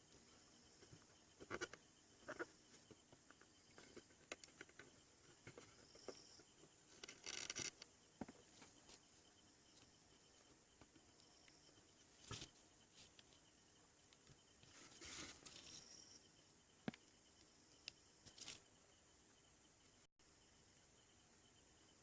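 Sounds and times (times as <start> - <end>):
scraping rustle: 14.6 - 16.0
faint clicks and taps: 16.8 - 18.6.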